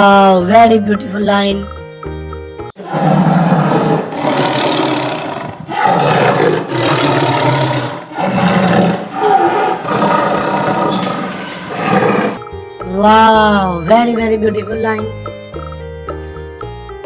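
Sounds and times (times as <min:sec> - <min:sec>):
lion roaring: 0:02.8 - 0:12.4.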